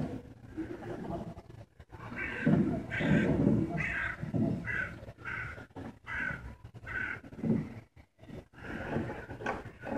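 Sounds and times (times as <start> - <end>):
bird calling: 2.0 - 7.3.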